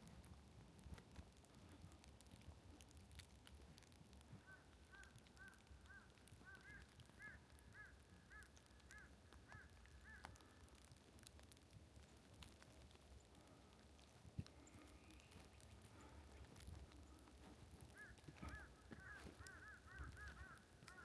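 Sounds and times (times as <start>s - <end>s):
bird calling faintly: 3.8s - 11.5s, 12.1s - 21.0s.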